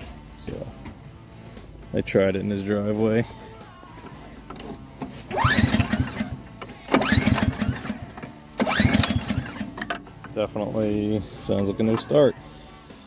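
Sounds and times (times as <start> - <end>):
recoil starter rope whir: 5.3 - 9.8.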